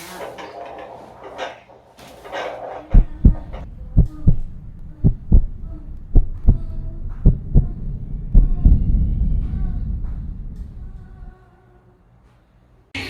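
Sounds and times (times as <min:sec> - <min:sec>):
heartbeat thumps: 0:02.9 - 0:11.3.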